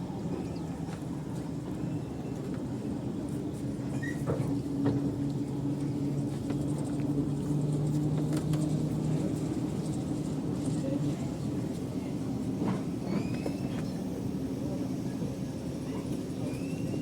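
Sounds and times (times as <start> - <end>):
diesel train engine drone: 0.0 - 17.0.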